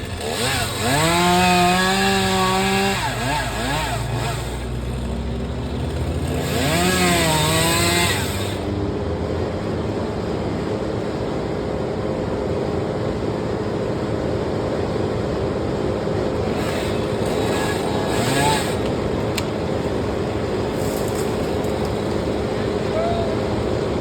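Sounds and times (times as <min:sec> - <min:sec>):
chainsaw engine revving: 0:00.0 - 0:08.8, 0:16.3 - 0:24.0.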